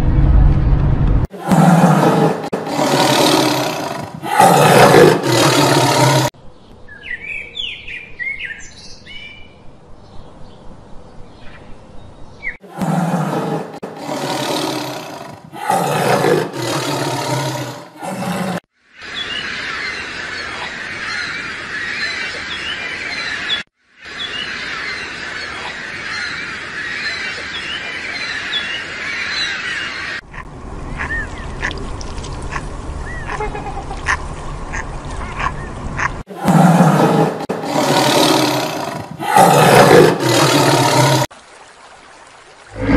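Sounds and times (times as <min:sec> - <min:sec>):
low rumble: 0:00.0 - 0:01.3
loud low animal calls: 0:01.3 - 0:06.3, 0:33.2 - 0:41.3
birds chirping: 0:01.4 - 0:23.6, 0:30.9 - 0:41.3.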